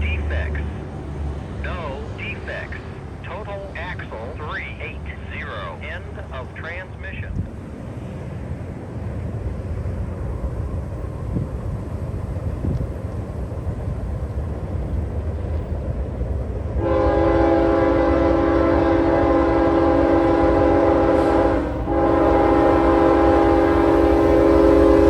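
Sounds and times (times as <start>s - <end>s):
train rumbling: 0.0s - 25.0s
locomotive air horn: 16.8s - 25.0s.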